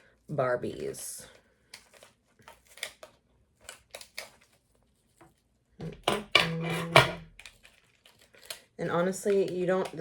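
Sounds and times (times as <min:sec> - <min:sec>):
scissors snipping plastic: 0:01.7 - 0:04.6, 0:05.8 - 0:10.0.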